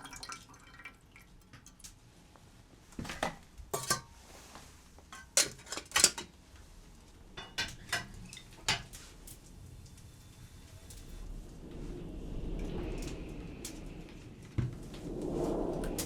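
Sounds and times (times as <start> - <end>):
metal utensils clinking on dishes: 3.7 - 4.2, 5.1 - 6.3, 7.4 - 9.0.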